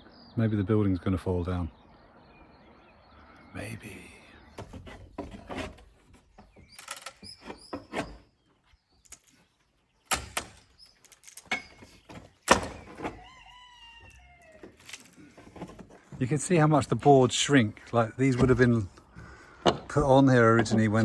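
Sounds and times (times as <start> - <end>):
wooden boards being pried off: 4.6 - 8.3, 10.1 - 21.0.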